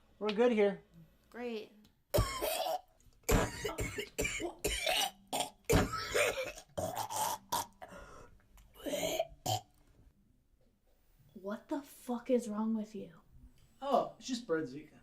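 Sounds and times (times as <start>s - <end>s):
man coughing: 2.1s - 7.4s.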